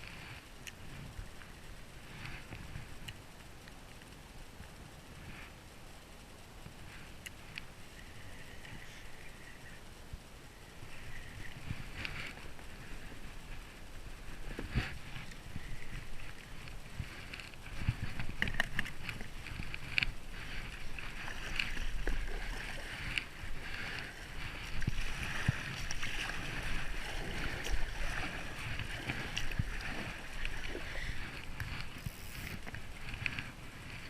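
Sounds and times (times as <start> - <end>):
river water splashing: 10.7 - 34.0.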